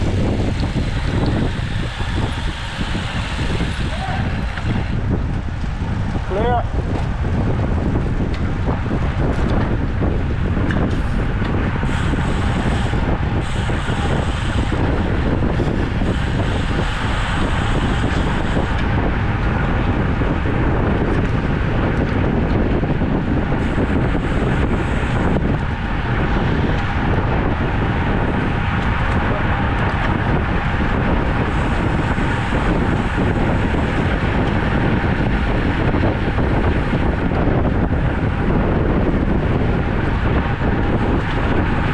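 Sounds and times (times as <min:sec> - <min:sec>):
wind rushing over microphone: 0:00.0 - 0:41.9.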